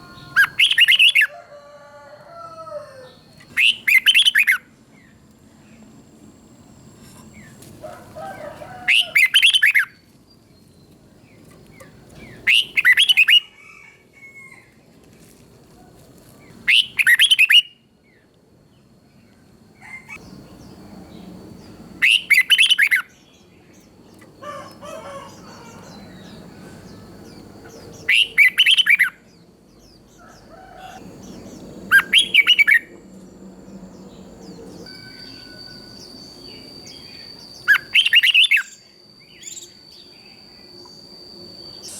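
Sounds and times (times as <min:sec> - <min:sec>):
bulbul singing: 0:00.0 - 0:01.3, 0:03.1 - 0:05.2, 0:08.4 - 0:10.0, 0:10.8 - 0:13.5, 0:19.9 - 0:41.9.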